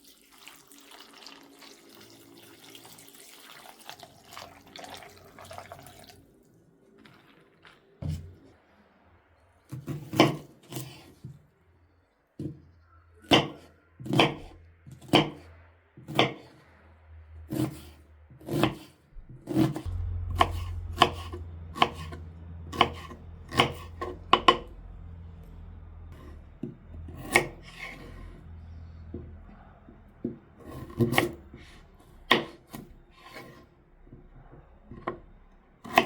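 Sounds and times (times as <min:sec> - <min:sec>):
knife chopping on wooden board: 0:09.7 - 0:11.1, 0:13.3 - 0:16.6, 0:17.5 - 0:24.7, 0:27.1 - 0:28.3, 0:30.2 - 0:31.4, 0:32.3 - 0:33.6.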